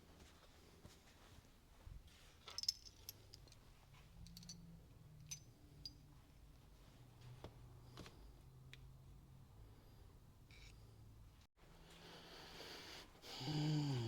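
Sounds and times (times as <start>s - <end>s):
metallic clinks of tools: 2.5s - 3.6s, 4.2s - 6.1s.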